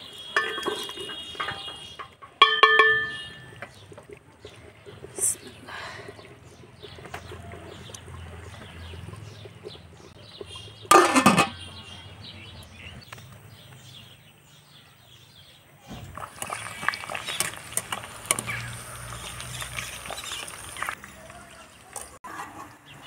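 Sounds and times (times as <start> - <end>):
metal cookware clinking: 0.2 - 3.8, 10.9 - 11.7
small birds chirping: 3.0 - 22.2.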